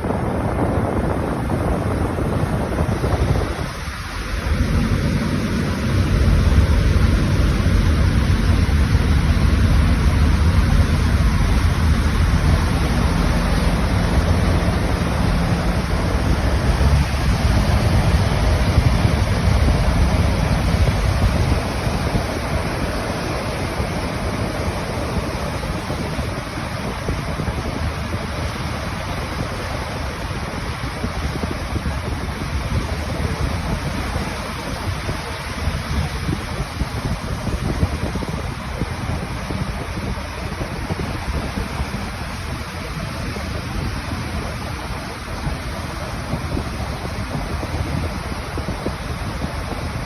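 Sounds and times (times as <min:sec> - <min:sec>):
faint engine hum: 0:00.0 - 0:50.0
rushing water: 0:00.0 - 0:50.0
wind buffeting microphone: 0:00.0 - 0:50.0.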